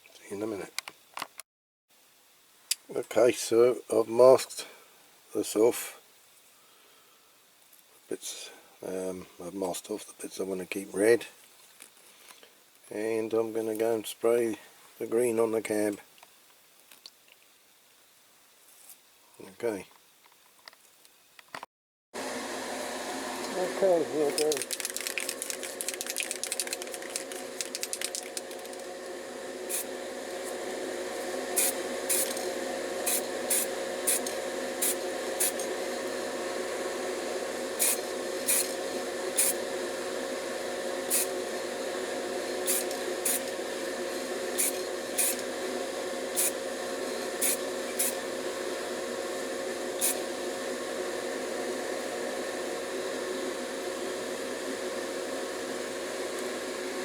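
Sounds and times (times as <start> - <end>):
steady background hum: 22.2 - 57.0
spray paint hissing: 24.4 - 28.9, 29.6 - 36.0, 37.6 - 40.2, 40.8 - 48.4, 49.6 - 50.3.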